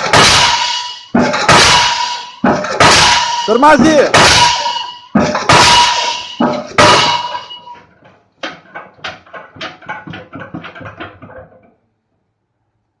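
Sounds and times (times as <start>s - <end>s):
ringing of heavy blow: 0.0s - 7.9s
pile hammer ram clanking: 0.0s - 11.8s.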